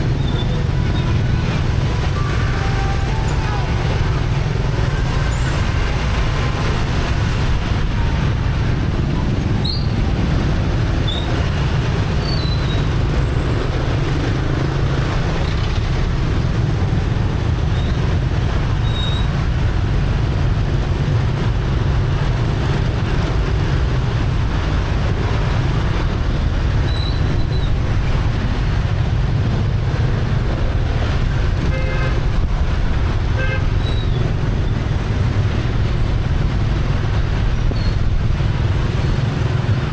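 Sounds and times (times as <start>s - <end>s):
traffic engines and road noise: 0.0s - 39.9s
horn toots: 33.4s - 34.1s.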